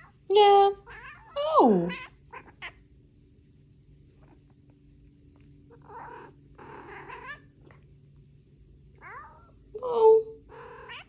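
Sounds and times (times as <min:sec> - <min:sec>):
cat meowing softly: 0:05.7 - 0:07.9, 0:09.0 - 0:09.6, 0:10.5 - 0:11.0.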